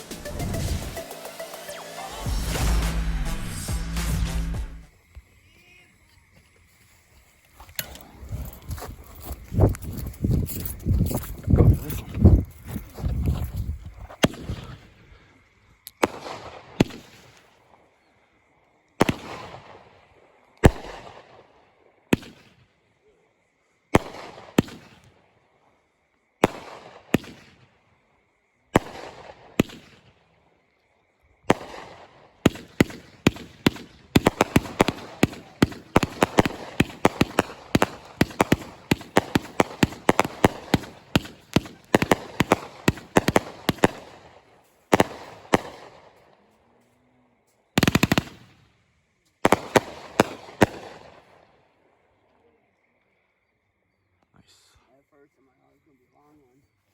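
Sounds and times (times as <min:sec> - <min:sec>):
firework shots with crackle: 0:14.1 - 0:14.8, 0:16.0 - 0:17.6, 0:19.0 - 0:20.0, 0:20.6 - 0:21.5, 0:22.1 - 0:22.7, 0:24.0 - 0:25.2, 0:26.4 - 0:27.8, 0:28.7 - 0:30.3, 0:31.4 - 0:46.2, 0:47.8 - 0:48.7, 0:49.4 - 0:51.5
rapid firework pops: 0:19.0 - 0:19.8, 0:20.6 - 0:21.4, 0:22.1 - 0:22.7, 0:24.0 - 0:25.2, 0:26.4 - 0:27.7, 0:28.8 - 0:30.2, 0:31.4 - 0:44.3, 0:44.9 - 0:46.1, 0:47.8 - 0:48.6, 0:49.4 - 0:51.2.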